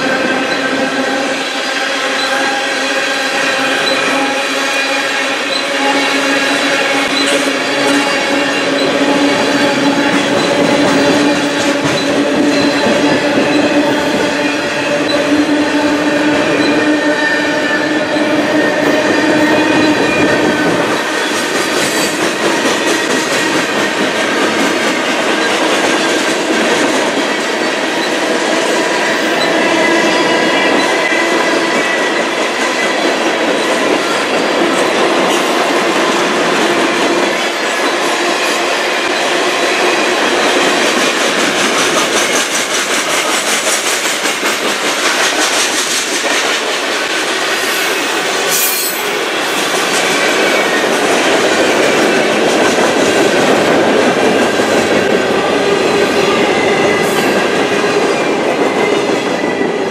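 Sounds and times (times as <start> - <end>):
freight train rolling on rails: 0.0 - 59.9
ringing squeal of wheels: 1.6 - 14.2, 16.4 - 22.1, 47.6 - 49.2.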